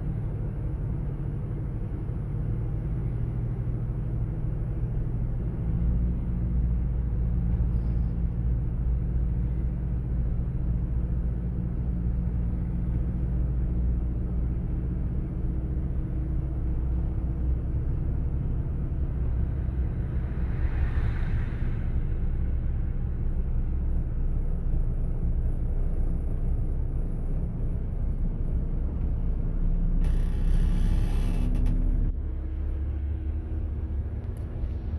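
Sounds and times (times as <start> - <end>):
engine rumble: 0.0 - 34.9
loud rush of noise: 19.8 - 23.2.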